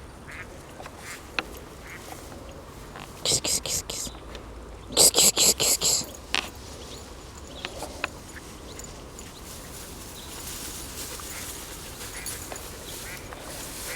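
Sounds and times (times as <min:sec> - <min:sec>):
rustling of dry weeds: 0:05.0 - 0:13.9.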